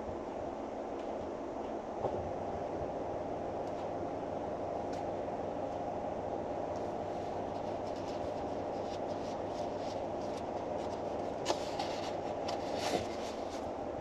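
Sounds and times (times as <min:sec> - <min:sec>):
faint rustles: 0:06.8 - 0:13.8.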